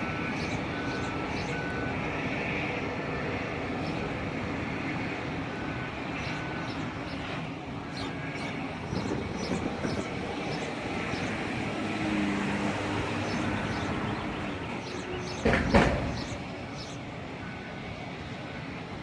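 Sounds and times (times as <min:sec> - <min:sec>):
engine hum: 0:00.0 - 0:19.0
heavy machinery rumble: 0:00.0 - 0:19.0
loud knock: 0:15.4 - 0:16.3.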